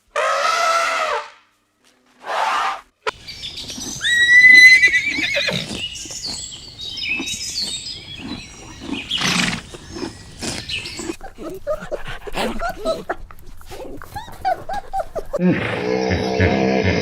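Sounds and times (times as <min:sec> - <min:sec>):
horse whinnying: 0:02.3 - 0:11.2, 0:14.9 - 0:17.0.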